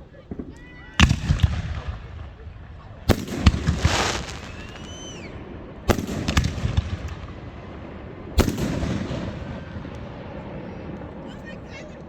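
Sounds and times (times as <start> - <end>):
fireworks bangs: 0.3 - 7.8, 8.4 - 9.8
fireworks crackling pops: 3.1 - 5.3, 5.9 - 7.3.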